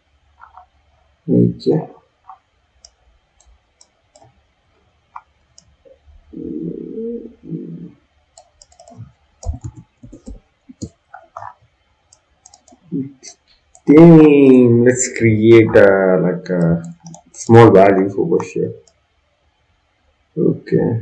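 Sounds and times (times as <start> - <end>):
computer mouse clicks: 2.8 - 4.4, 5.1 - 5.8, 8.3 - 13.9, 16.6 - 17.4, 18.8 - 19.0
low hum: 5.1 - 18.9.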